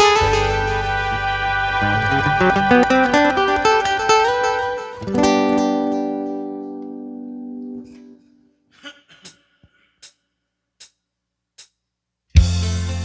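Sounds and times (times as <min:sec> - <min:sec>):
guitar piece with bass: 0:00.0 - 0:08.2, 0:12.4 - 0:13.0
guitar chord ringing: 0:00.0 - 0:08.4.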